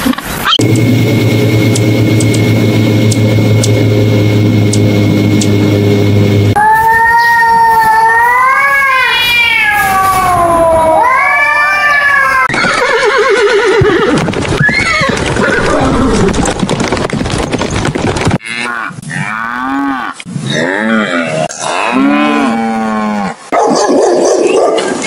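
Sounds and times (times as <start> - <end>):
cats yowling: 6.6 - 12.5
pony whinnying: 11.8 - 16.3.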